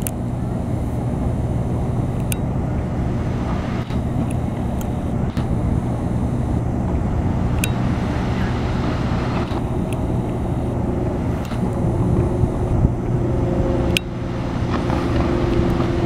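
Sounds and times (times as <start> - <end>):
traffic noise: 0.0 - 16.0
vehicle engine rumble: 0.0 - 16.0
faint sharp ticks: 2.2 - 2.4, 13.9 - 14.1.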